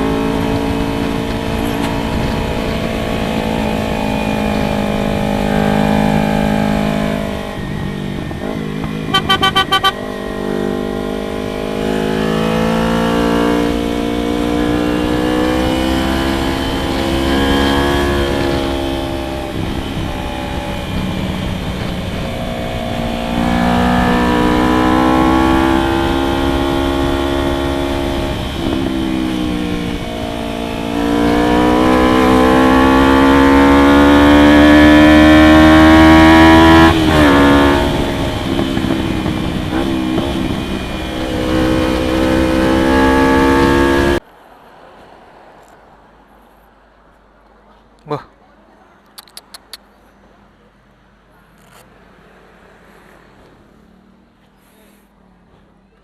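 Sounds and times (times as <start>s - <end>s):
motorcycle engine accelerating: 0.0s - 44.2s
horn short beeps: 9.1s - 10.0s.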